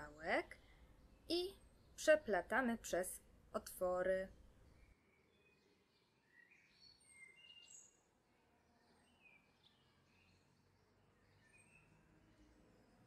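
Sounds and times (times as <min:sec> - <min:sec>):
faint high bird chirps: 0:04.6 - 0:12.9.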